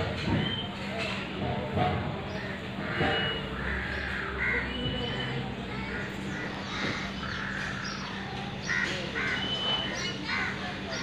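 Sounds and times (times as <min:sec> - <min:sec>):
bird calling: 0:02.3 - 0:11.0.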